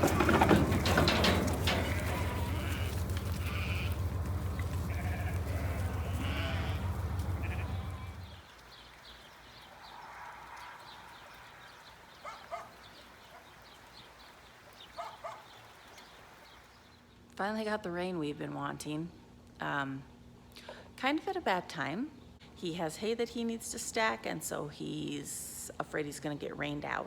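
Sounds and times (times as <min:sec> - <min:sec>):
steady low rumble: 0:00.1 - 0:08.4
sheep bleating: 0:01.5 - 0:08.4.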